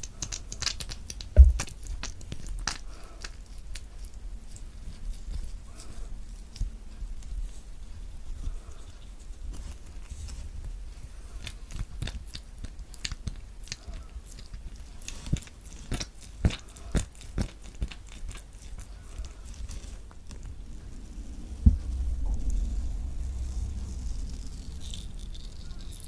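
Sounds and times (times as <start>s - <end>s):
heavy thump: 1.4s - 1.7s, 20.9s - 24.5s.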